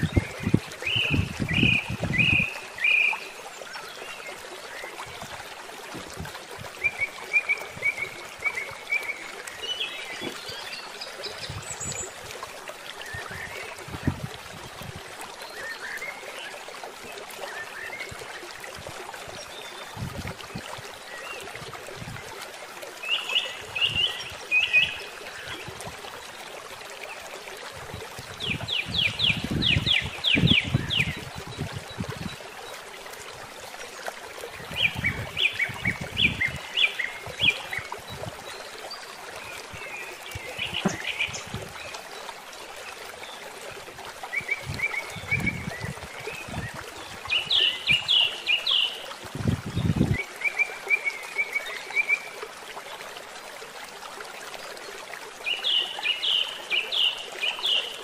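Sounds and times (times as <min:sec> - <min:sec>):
running water hiss: 0:00.0 - 0:58.0
birds chirping rapidly: 0:34.7 - 0:41.8.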